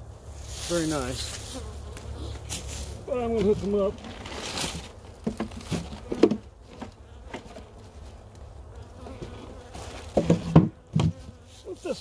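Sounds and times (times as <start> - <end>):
bees buzzing: 0.0 - 12.0
wooden knocks of hive frames: 4.8 - 7.8, 9.0 - 11.4.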